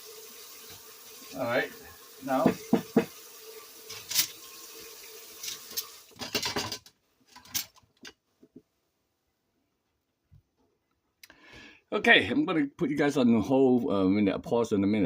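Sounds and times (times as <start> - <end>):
cookware knocking and scraping: 2.4 - 3.1, 5.5 - 7.7.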